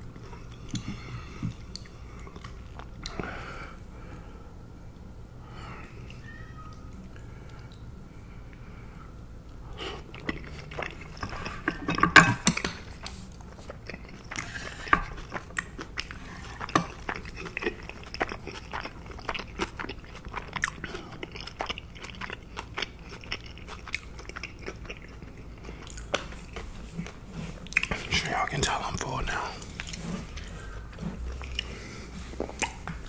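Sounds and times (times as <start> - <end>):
close chewing crunches: 9.8 - 33.0.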